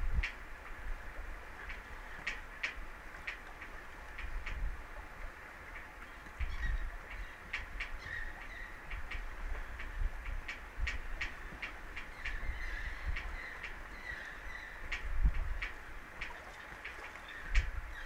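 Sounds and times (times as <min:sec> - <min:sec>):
wind rumbling on microphone: 0:00.0 - 0:18.0
birds calling: 0:06.0 - 0:09.9, 0:11.2 - 0:18.0.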